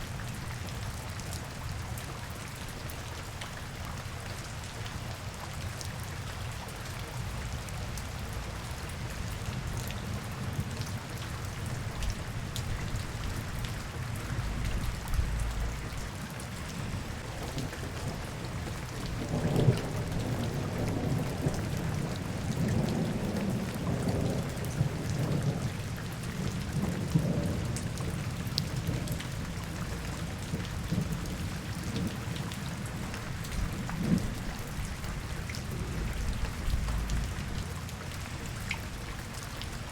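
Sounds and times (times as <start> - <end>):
rain pattering on hard surfaces: 0.0 - 39.9
low rolling rumble: 13.0 - 16.2, 35.7 - 37.7.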